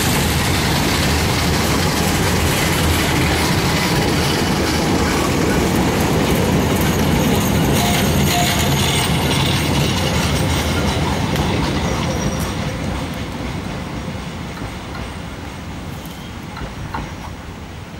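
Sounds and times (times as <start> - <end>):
train coaches rumbling and rattling: 0.0 - 17.9.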